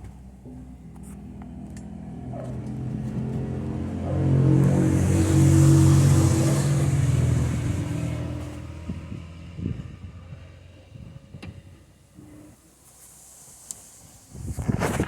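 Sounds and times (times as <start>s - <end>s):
car engine: 0.0s - 11.7s.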